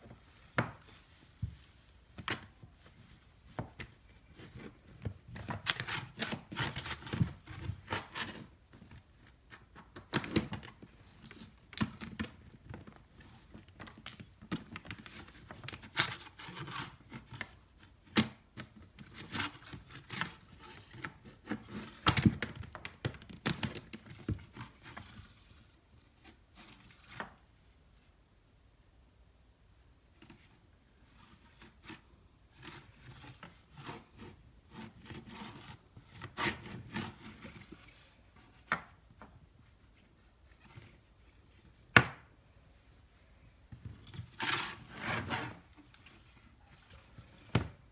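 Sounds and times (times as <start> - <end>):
scraping rustles: 42.8 - 47.9.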